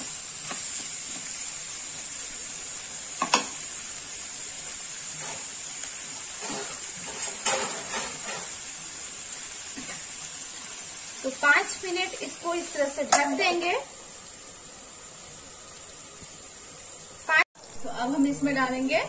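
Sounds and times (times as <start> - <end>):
vegetables sizzling in a pan: 0.0 - 19.0
steel spoon scraping a pan: 5.1 - 8.8.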